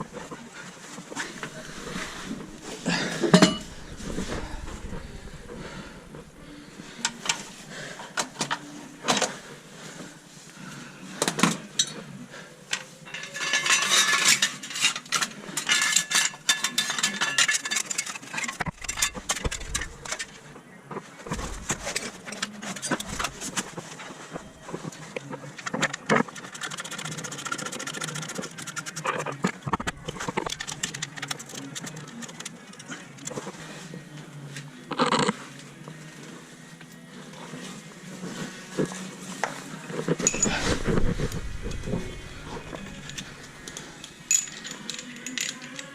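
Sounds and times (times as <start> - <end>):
hand tools and metal parts clinking: 1.2 - 4.4, 12.7 - 20.4, 21.3 - 25.0, 40.1 - 45.9.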